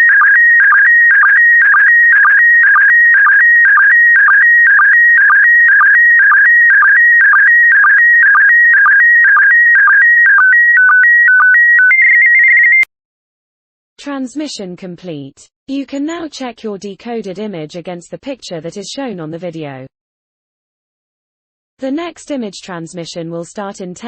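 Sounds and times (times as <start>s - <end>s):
short low sync beeps: 0.0s - 12.9s.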